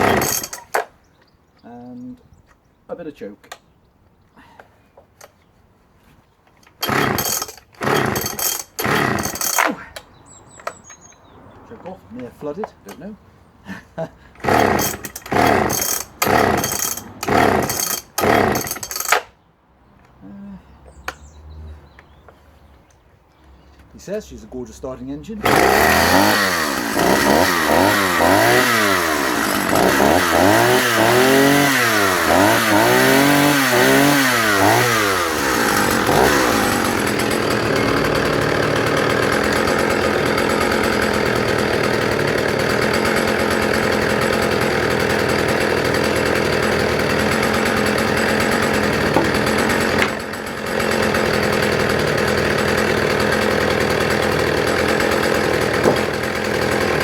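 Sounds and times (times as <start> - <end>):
chainsaw revving: 0.0 - 0.9, 6.7 - 9.9, 14.4 - 19.2, 25.3 - 57.0
chainsaw cutting log: 0.0 - 1.0, 6.7 - 10.0, 14.4 - 19.3, 25.2 - 57.0.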